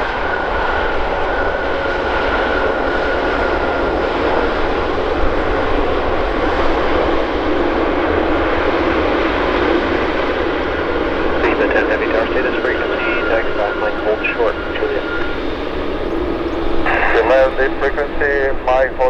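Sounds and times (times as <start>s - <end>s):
jet engine rushing: 0.0s - 19.0s
faint high whine: 4.2s - 19.0s.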